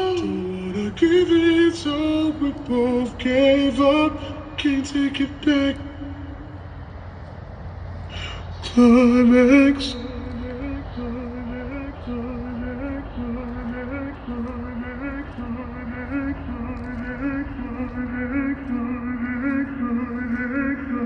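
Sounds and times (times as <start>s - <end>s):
a cappella singing over speakers: 0.0s - 6.8s, 8.1s - 21.0s
low steady rumble: 0.0s - 21.0s
background voices holding notes: 8.1s - 21.0s.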